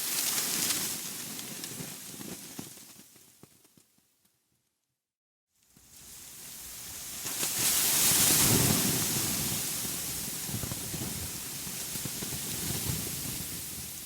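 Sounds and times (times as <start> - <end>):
steady rushing hiss: 5.8 - 14.0.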